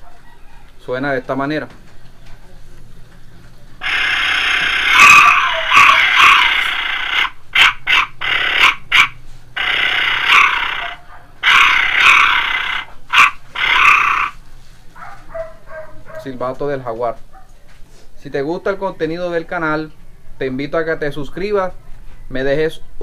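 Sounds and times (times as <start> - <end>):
clay whistle growling blasts: 3.8 - 14.4.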